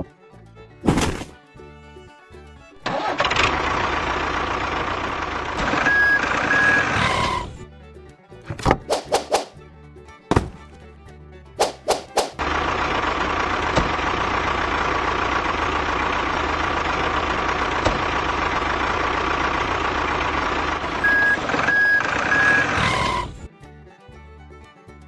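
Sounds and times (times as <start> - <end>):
truck engine running: 0.0 - 25.0
reversing beeps: 5.8 - 7.2, 21.0 - 23.2.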